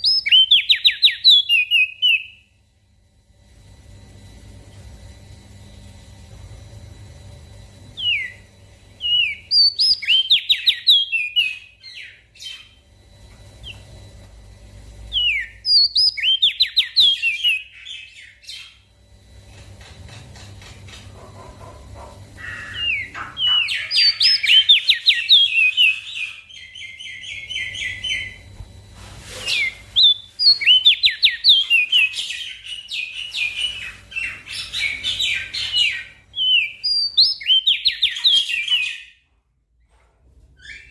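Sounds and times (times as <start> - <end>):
songbird chirping and trilling: 0.0 - 2.5, 7.9 - 13.0, 15.1 - 18.9, 21.2 - 28.6, 29.5 - 39.2
faint low hum: 0.0 - 40.9.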